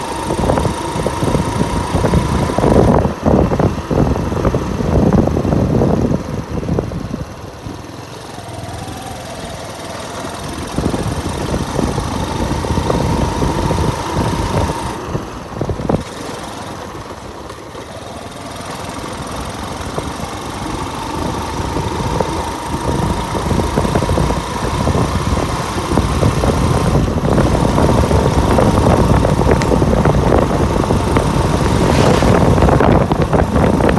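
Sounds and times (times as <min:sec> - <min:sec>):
wind buffeting microphone: 0:00.0 - 0:07.9, 0:20.3 - 0:33.9
motorcycle engine running: 0:00.0 - 0:33.9.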